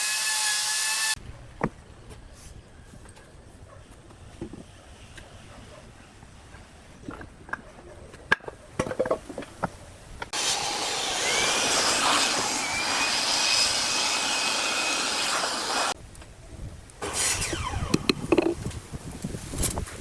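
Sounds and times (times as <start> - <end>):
power tool whooshing: 10.3 - 16.0, 17.0 - 18.6.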